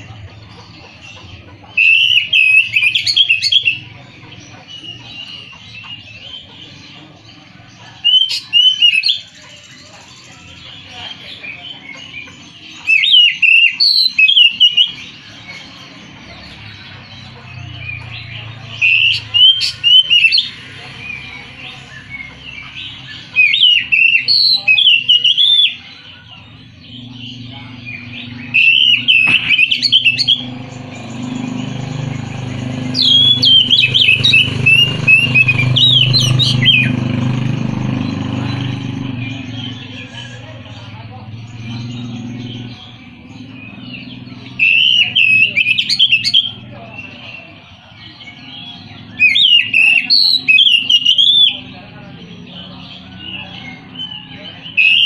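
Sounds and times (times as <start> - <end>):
bird singing whistled phrases: 1.8 - 3.8, 12.8 - 15.0, 18.8 - 25.9, 27.1 - 30.6, 32.9 - 37.0, 43.6 - 46.6, 48.5 - 51.8, 53.1 - 55.0.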